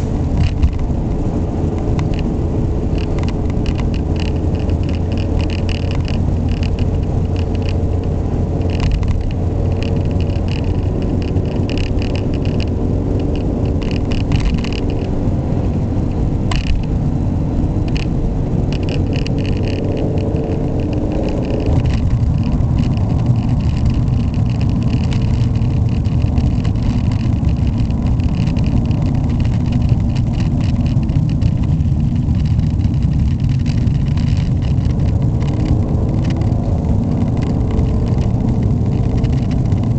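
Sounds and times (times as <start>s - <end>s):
car engine running: 0.0s - 39.9s
tyre and road noise: 0.0s - 39.9s.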